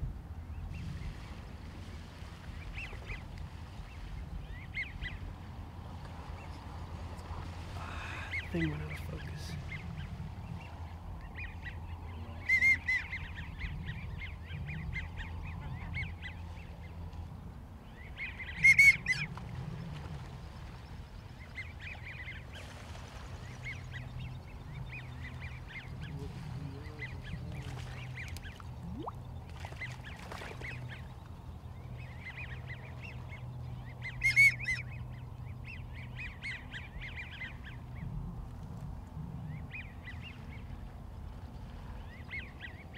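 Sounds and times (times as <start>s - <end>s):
ducks whistling and chattering: 6.2s - 17.0s, 17.9s - 38.2s.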